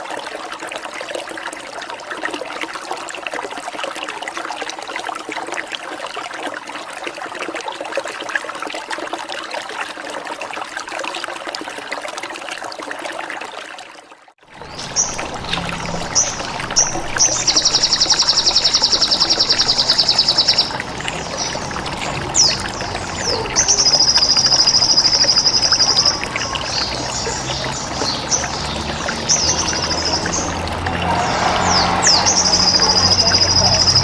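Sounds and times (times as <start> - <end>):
running water: 0.0 - 34.0
songbird chirps and trills: 14.6 - 34.0.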